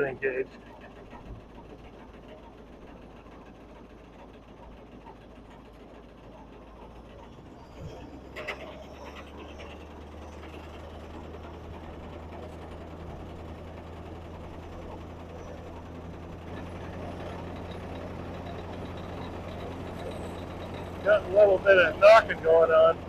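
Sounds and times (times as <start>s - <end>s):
combine mechanical hum: 0.0s - 23.0s.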